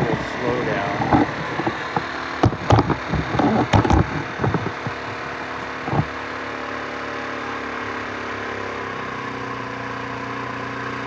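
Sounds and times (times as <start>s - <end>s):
sharp knocks: 0.0s - 6.1s
scooter engine idling: 0.0s - 11.0s.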